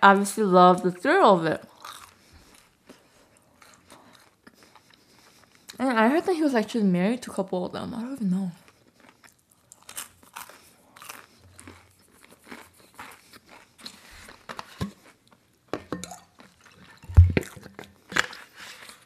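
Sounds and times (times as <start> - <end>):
person chewing and crunching food: 1.6 - 6.2, 8.4 - 19.0.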